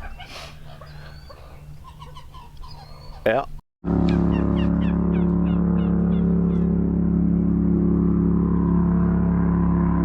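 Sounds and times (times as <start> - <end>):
birds chirping: 0.0 - 6.8
boat motor running: 3.8 - 10.0.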